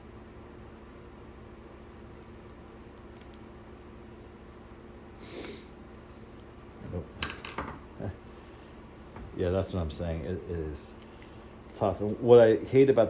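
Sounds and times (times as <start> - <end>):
short hiss: 5.2 - 5.7.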